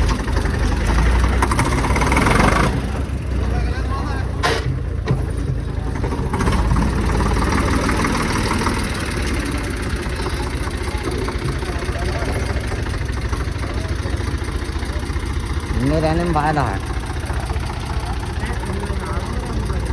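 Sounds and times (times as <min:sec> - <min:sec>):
tractor diesel engine running: 0:00.0 - 0:19.9
faint voices: 0:02.7 - 0:07.4, 0:08.8 - 0:19.9.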